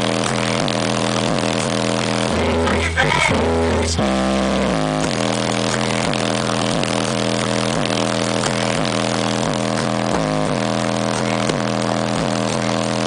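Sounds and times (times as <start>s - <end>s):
buzzy bass from car stereo: 0.0s - 13.0s.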